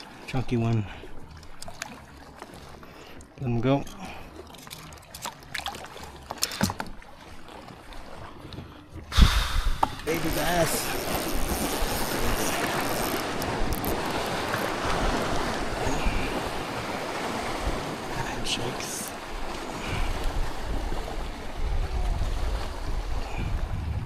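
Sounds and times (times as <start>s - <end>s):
water sloshing around kayak: 0.0s - 24.0s
wind buffeting microphone: 8.9s - 18.1s, 19.2s - 24.0s.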